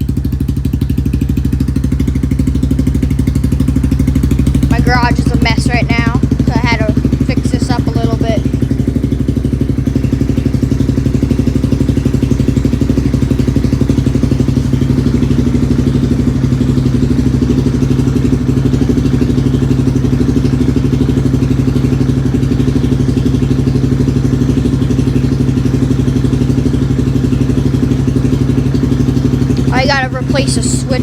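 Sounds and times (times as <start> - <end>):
atv engine idling: 0.0 - 31.0.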